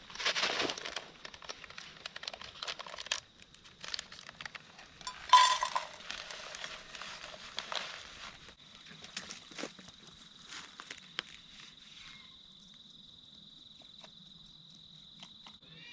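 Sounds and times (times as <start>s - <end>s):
food packet crinkling: 0.0s - 8.4s
pot and utensils clinking: 5.1s - 6.3s.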